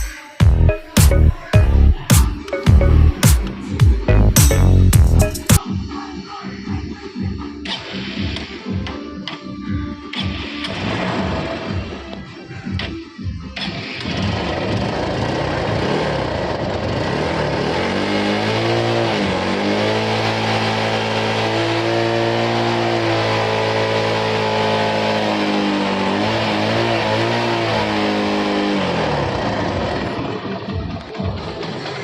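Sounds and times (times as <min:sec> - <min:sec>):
motorcycle engine revving: 0:14.0 - 0:30.9.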